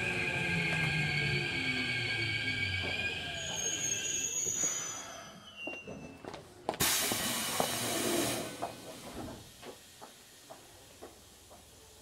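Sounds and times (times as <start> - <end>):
faint electric train whine: 0.0 - 12.0
compressed air hiss: 6.8 - 8.7.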